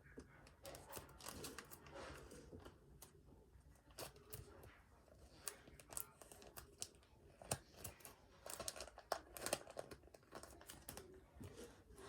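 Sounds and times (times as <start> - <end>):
plastic sleeves crinkling: 5.4 - 11.7.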